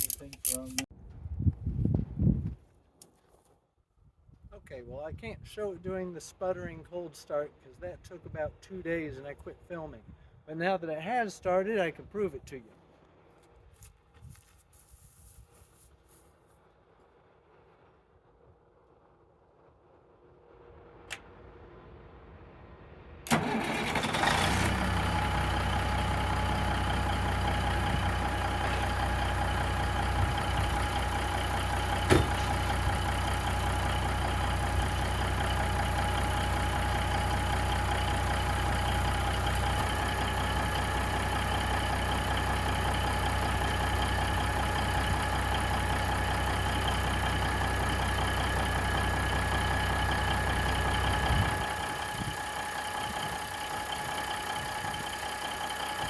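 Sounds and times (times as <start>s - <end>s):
diesel engine idling: 23.3s - 56.0s.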